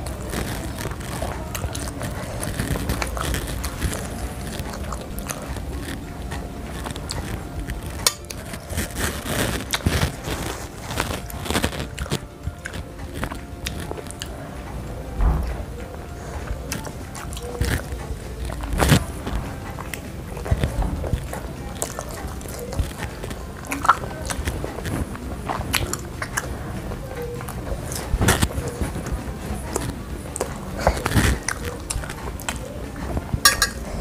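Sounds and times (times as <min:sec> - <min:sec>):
biting and chewing meatballs: 0:00.0 - 0:34.0
mouth clicks and crackles: 0:00.0 - 0:34.0
metal fork clinking on plate: 0:33.4 - 0:33.9.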